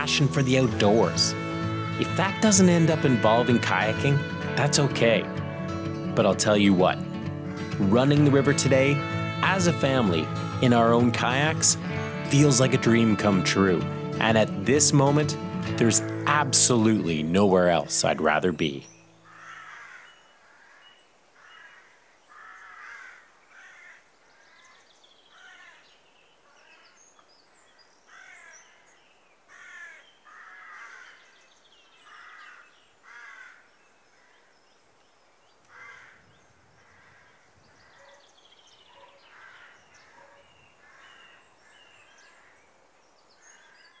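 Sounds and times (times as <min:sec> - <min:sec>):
small birds high chirps: 0:24.0 - 0:44.0.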